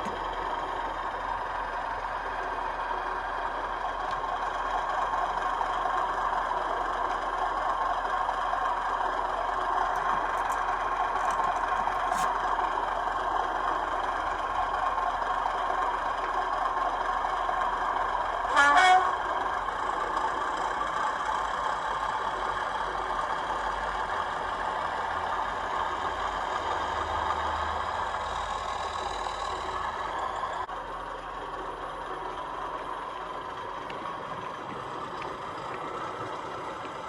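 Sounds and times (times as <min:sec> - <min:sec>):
model diesel engine sound: 0:00.0 - 0:37.0
short horn blast: 0:18.5 - 0:19.2.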